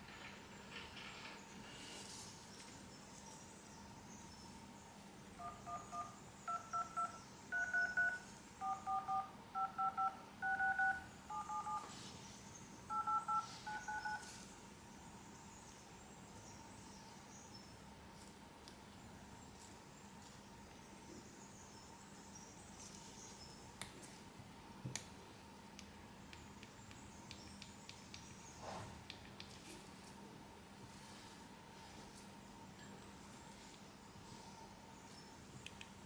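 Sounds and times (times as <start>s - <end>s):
phone keypad dial tones: 5.4s - 12.0s, 12.9s - 14.3s.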